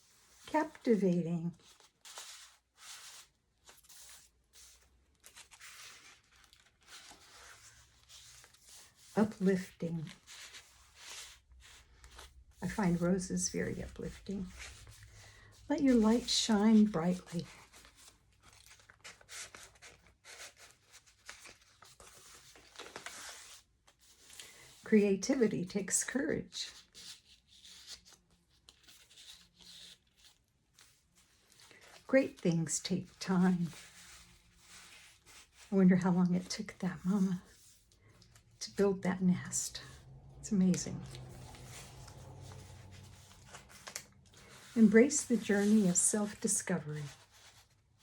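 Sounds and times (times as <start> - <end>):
paper pages rustling: 0.0 - 48.0.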